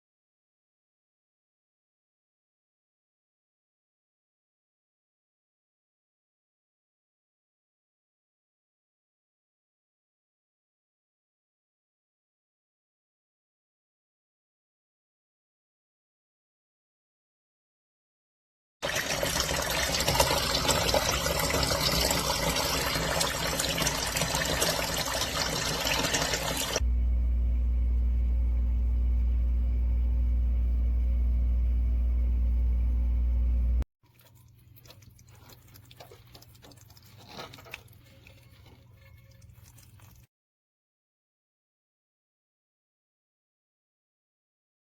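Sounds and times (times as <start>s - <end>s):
water rushing out of drain: 18.8s - 26.8s
loud steady low hum: 26.8s - 33.8s.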